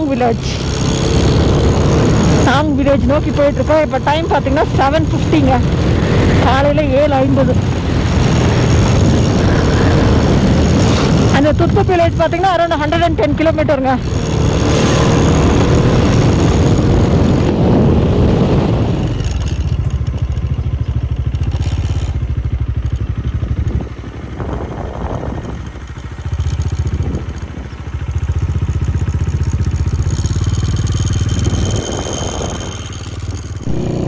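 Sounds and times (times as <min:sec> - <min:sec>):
motorcycle engine running: 0:00.0 - 0:34.0
loud rushing noise: 0:07.3 - 0:11.4.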